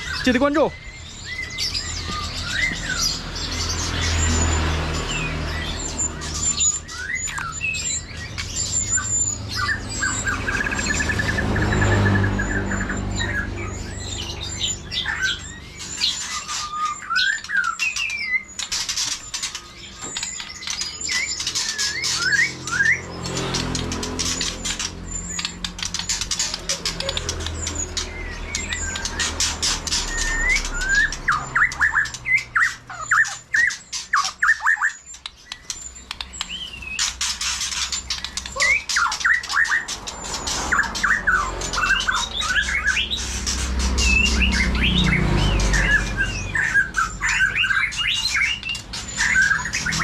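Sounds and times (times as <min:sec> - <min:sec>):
birds chirping: 0:00.0 - 0:50.0
bird singing whistled phrases: 0:06.3 - 0:18.6, 0:19.9 - 0:23.1, 0:29.9 - 0:37.0, 0:38.2 - 0:39.8
sharp clicks: 0:35.1 - 0:40.6.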